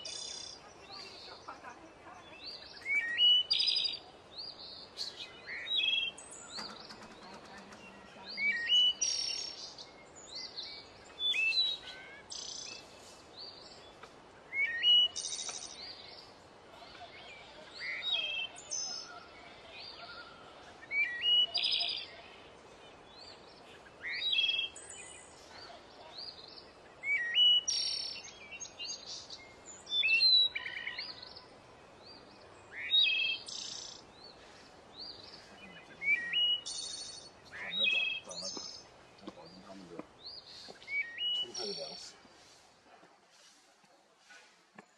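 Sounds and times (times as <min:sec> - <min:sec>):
background hiss: 0:00.0 - 0:44.9
songbird whistling: 0:08.4 - 0:09.7, 0:14.5 - 0:15.8, 0:27.0 - 0:28.7, 0:35.8 - 0:38.8, 0:40.6 - 0:41.8.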